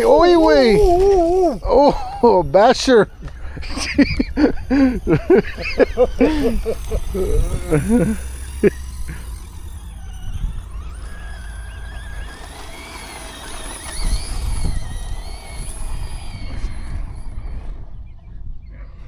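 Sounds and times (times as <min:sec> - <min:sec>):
electric motor whining: 0:00.0 - 0:18.6
wind rumble on microphone: 0:03.0 - 0:09.3, 0:09.9 - 0:12.4, 0:13.6 - 0:19.0.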